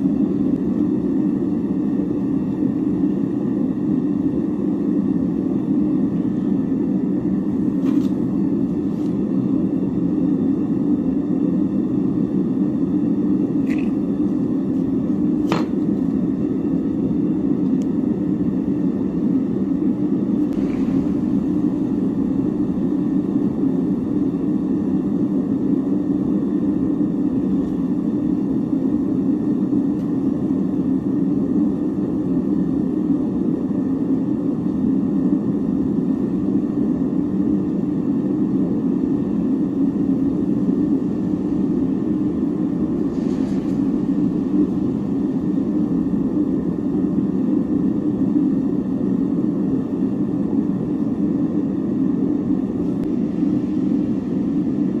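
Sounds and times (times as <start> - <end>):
gas torch roaring: 12.9 - 32.6, 40.7 - 47.2.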